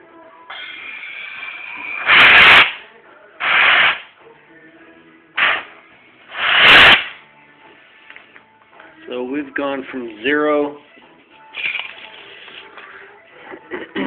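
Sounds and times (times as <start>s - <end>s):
compressed air hissing: 0.5s - 2.8s, 3.4s - 4.1s, 5.4s - 7.2s.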